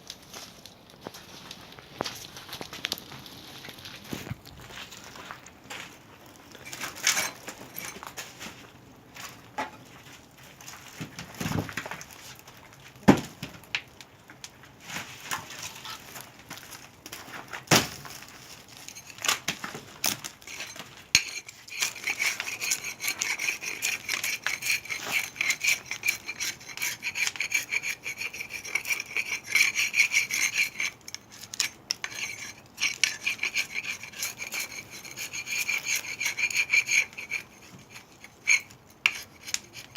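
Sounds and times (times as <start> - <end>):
hand saw cutting wood: 20.4 - 39.9.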